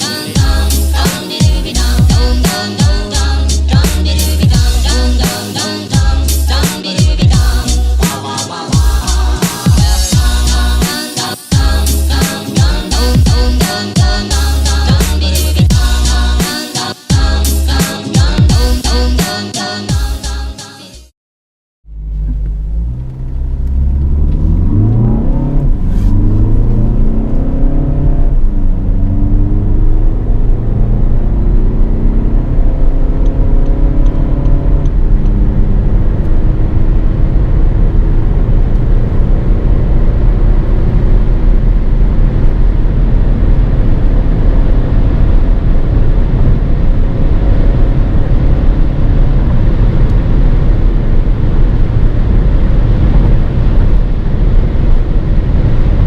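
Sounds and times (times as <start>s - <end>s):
car engine accelerating: 21.8s - 56.0s
road and wind noise: 21.9s - 56.0s.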